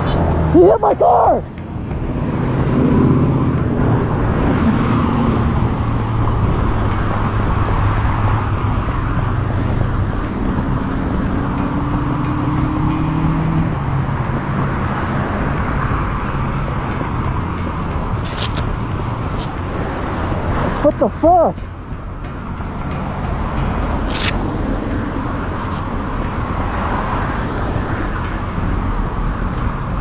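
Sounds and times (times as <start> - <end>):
road and wind noise: 0.0 - 30.0.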